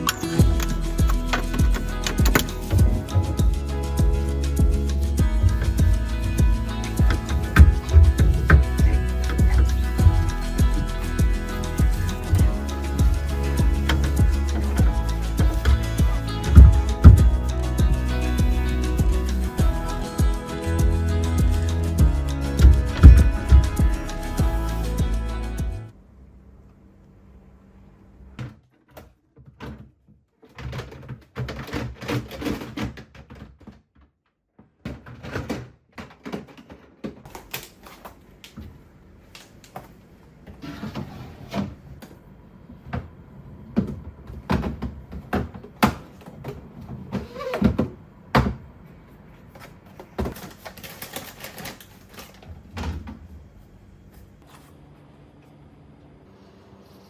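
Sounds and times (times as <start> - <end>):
clicks and knocks of containers: 49.5 - 52.5.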